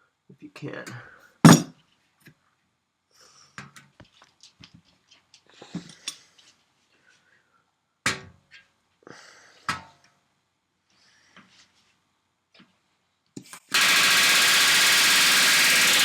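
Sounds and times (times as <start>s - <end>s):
metal tools clicking and clinking: 1.5s - 1.7s
sharp knocks: 1.5s - 1.7s.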